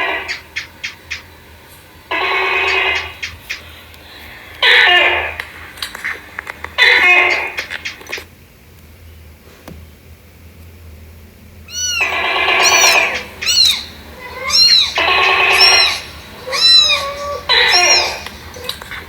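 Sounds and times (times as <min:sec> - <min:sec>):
cat chirping: 0:04.6 - 0:08.2, 0:11.7 - 0:19.0
cat meowing: 0:11.7 - 0:19.0.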